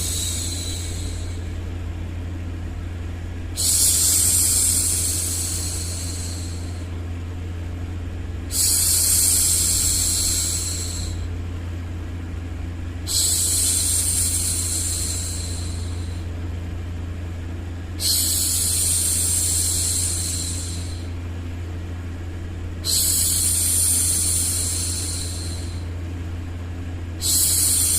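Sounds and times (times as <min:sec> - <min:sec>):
woman shushing: 0:00.0 - 0:01.5, 0:03.6 - 0:06.8, 0:08.5 - 0:11.2, 0:13.1 - 0:16.2, 0:18.0 - 0:21.1, 0:22.8 - 0:25.8, 0:27.2 - 0:27.9
steady low hum: 0:00.0 - 0:27.9.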